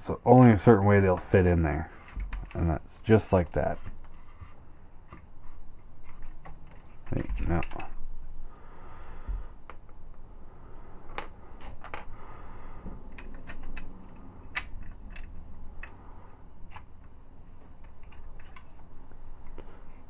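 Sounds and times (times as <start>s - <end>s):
plastic toy parts clicking: 13.1s - 16.0s, 17.8s - 18.7s.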